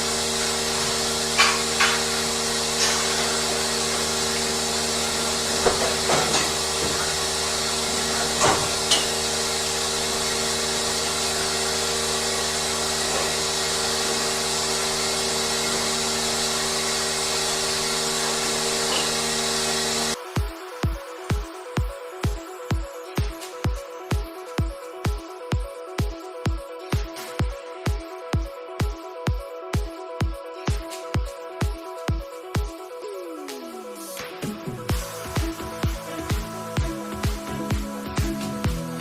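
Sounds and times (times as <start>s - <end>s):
machinery humming and hissing: 0.0s - 24.7s, 33.0s - 39.0s.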